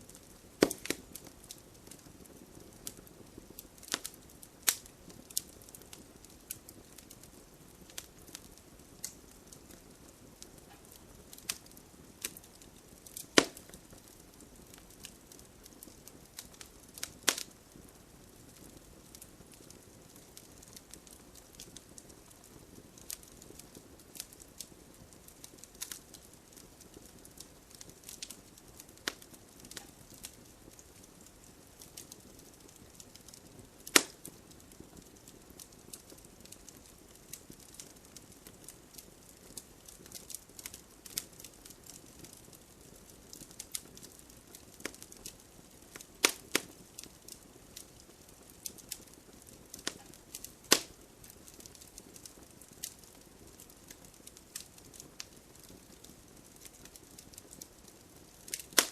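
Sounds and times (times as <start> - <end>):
flames hissing: 0.0 - 20.4, 56.5 - 58.9
campfire pops and snaps: 0.1 - 17.8, 18.4 - 58.9.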